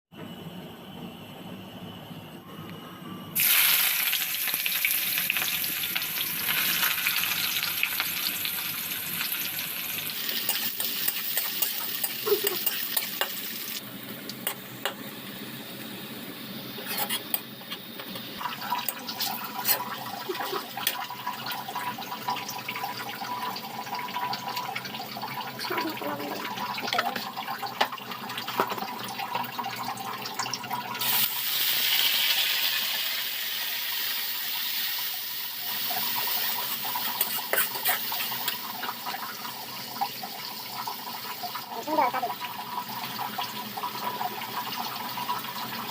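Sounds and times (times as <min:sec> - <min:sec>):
cooking hiss: 0:03.4 - 0:22.9, 0:30.9 - 0:45.9.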